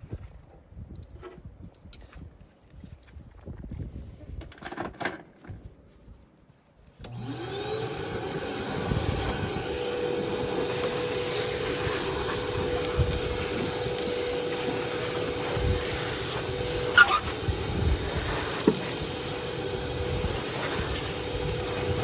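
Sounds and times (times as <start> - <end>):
heater blower motor whining: 7.0 - 22.0.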